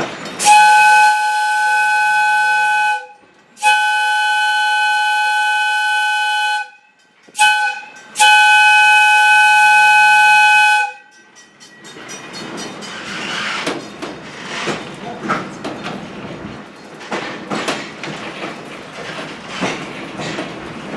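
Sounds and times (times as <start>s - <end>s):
train rumbling on rails: 0.0s - 20.9s
steam whistle blasts: 0.4s - 11.1s.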